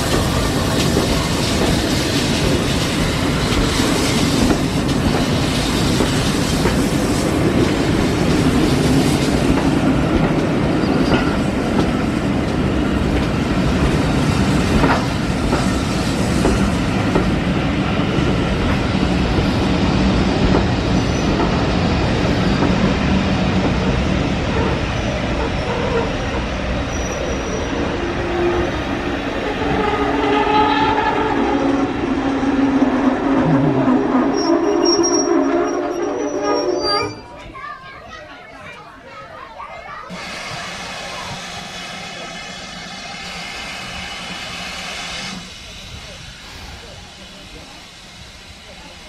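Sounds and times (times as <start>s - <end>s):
train wheels rumbling on rails: 0.0s - 38.0s, 40.1s - 49.0s.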